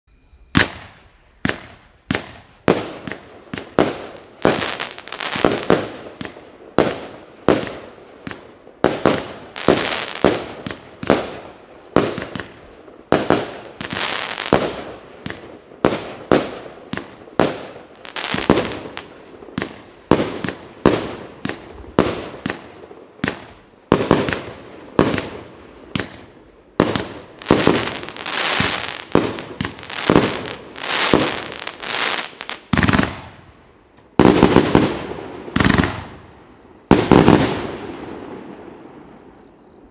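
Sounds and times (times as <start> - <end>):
firework bangs: 0.6 - 33.5, 34.2 - 39.2.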